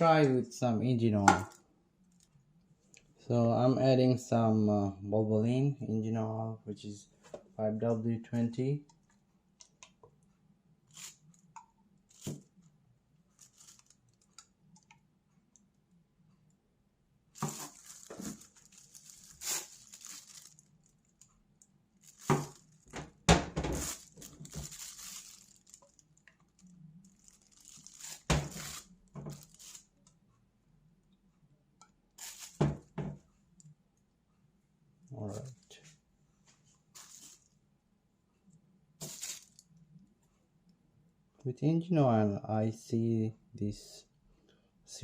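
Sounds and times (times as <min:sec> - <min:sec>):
bottles and containers clinking: 0:17.4 - 0:20.5, 0:39.0 - 0:39.5.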